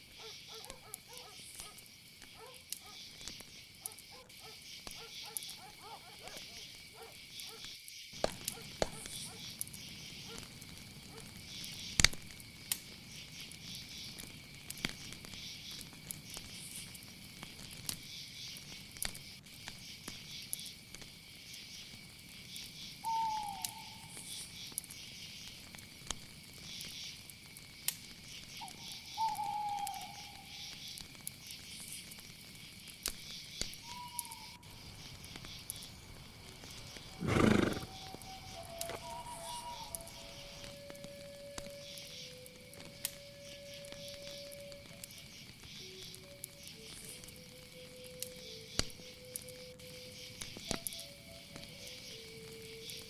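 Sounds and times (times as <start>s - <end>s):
crickets chirring: 0.0s - 53.0s
animal falling calls: 37.0s - 40.1s.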